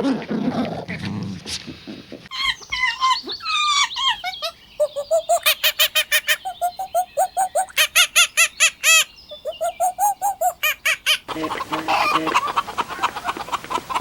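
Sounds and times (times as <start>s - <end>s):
squeaky bird chirps: 2.3s - 12.4s
short honking bird calls: 11.2s - 12.5s.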